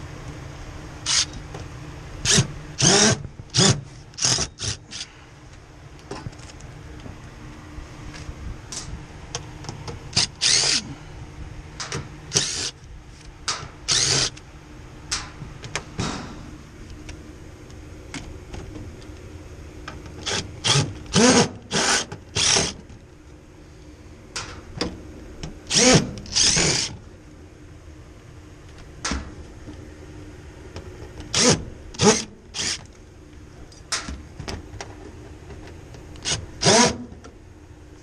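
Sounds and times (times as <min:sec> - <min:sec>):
power drill short bursts: 0:02.2 - 0:05.1, 0:10.2 - 0:10.8, 0:12.3 - 0:12.7, 0:13.9 - 0:14.4, 0:20.2 - 0:22.8, 0:25.7 - 0:26.9, 0:31.3 - 0:32.8, 0:36.2 - 0:37.0.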